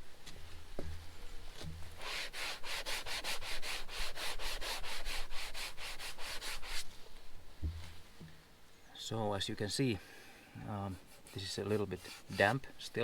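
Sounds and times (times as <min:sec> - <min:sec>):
foam scrubbing on plastic: 0:02.0 - 0:07.0, 0:10.9 - 0:13.0.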